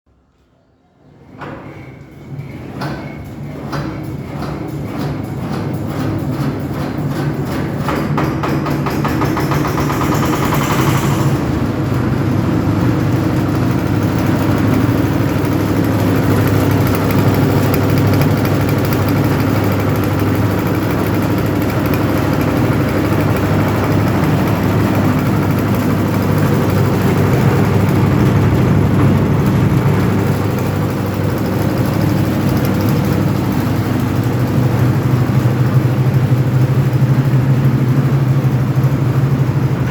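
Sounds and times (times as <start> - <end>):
diesel engine knocking: 2.8 - 39.9.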